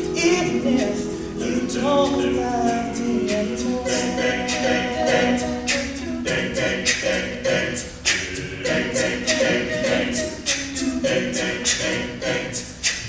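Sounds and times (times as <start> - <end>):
men singing held harmonies: 0.0 - 13.0
vocal percussion beat: 0.0 - 13.0.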